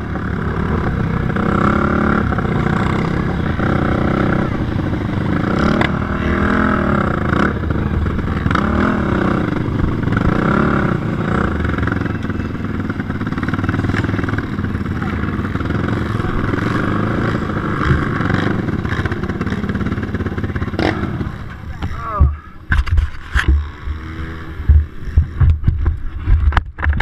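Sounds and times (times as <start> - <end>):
quad engines running hard: 0.0 - 27.0
sharp clattering knocks: 21.8 - 27.0.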